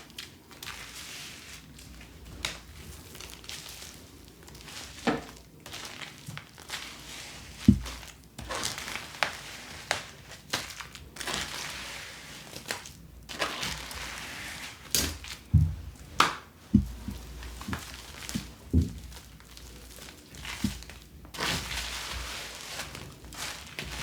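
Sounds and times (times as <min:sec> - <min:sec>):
plastic rustling and crinkling: 0:00.0 - 0:24.0
knocks and thumps on hard surface: 0:15.5 - 0:17.8, 0:18.4 - 0:19.2.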